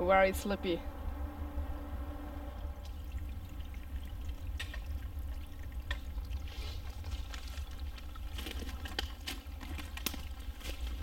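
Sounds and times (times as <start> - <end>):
steady low rumble: 0.0 - 11.0
stream trickling: 2.1 - 11.0
footsteps through wet leaves: 7.1 - 11.0
twigs snapping: 7.1 - 11.0.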